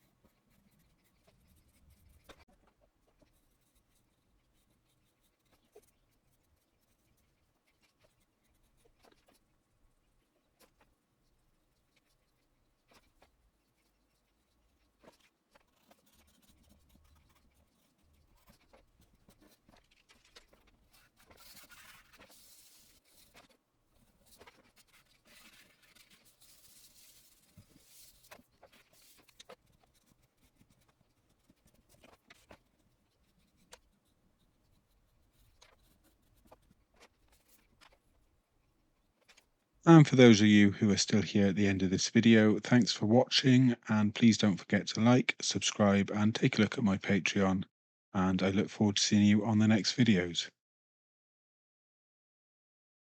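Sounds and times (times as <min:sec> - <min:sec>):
pastel pencil scratching on paper: 0:00.0 - 0:42.4.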